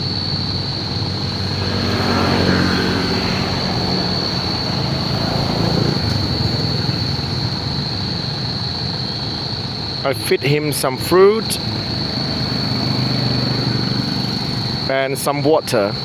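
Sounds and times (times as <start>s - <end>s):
high-pitched whine: 0.0s - 16.0s
motor engine running: 0.9s - 8.5s.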